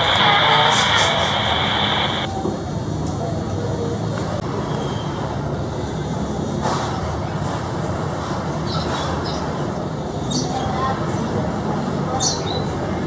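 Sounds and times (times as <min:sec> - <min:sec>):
short hiss: 0:00.0 - 0:02.3
road traffic rumble: 0:00.0 - 0:04.6.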